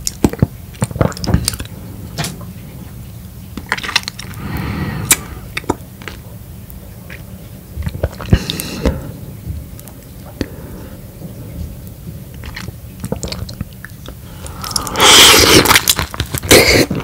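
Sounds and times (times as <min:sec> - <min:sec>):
wet chewing of lemon: 0:03.6 - 0:04.4, 0:11.6 - 0:17.0
breathy mouth sound: 0:04.2 - 0:05.8, 0:07.9 - 0:11.8, 0:12.4 - 0:15.8
clicking mouth sounds: 0:05.1 - 0:05.8.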